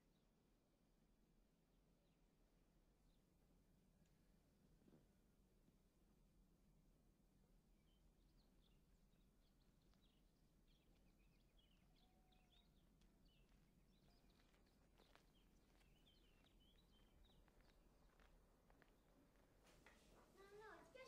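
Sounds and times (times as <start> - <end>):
faint birds chirping: 7.6 - 21.0.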